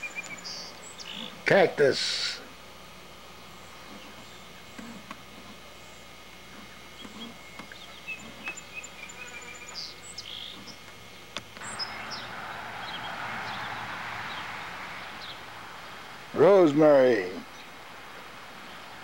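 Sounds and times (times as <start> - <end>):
small birds chirping: 0.0 - 1.5, 3.2 - 19.0
steady hiss: 0.0 - 7.4, 8.1 - 19.0.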